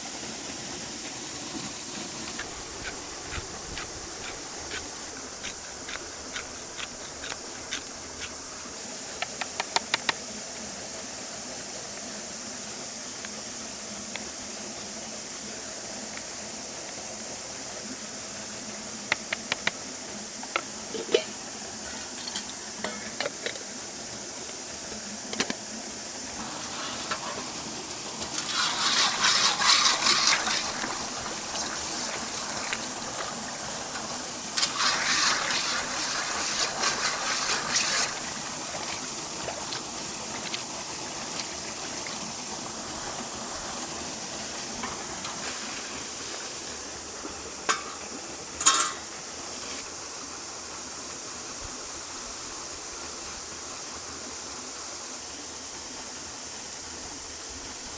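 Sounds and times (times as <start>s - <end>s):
steady background hiss: 0.0s - 57.9s
cookware clinking: 20.9s - 23.5s, 47.7s - 48.0s, 48.6s - 49.1s.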